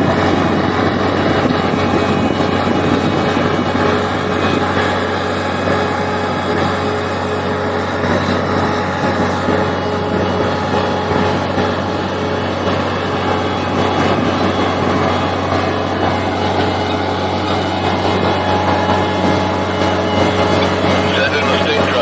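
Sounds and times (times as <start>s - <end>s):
heavy construction machinery running: 0.0s - 22.0s.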